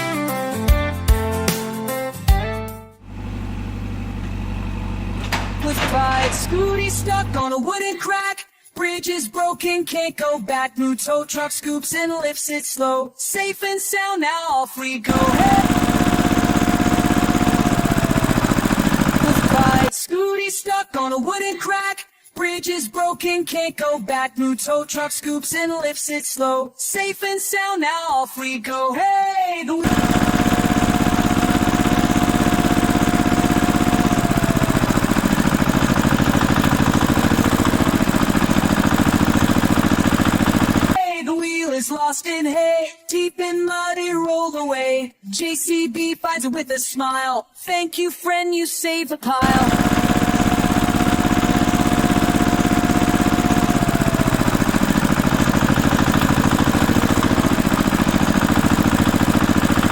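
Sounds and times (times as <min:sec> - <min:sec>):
vehicle engine running: 0:03.0 - 0:07.4, 0:15.1 - 0:19.9, 0:29.8 - 0:41.0, 0:49.4 - 0:59.9.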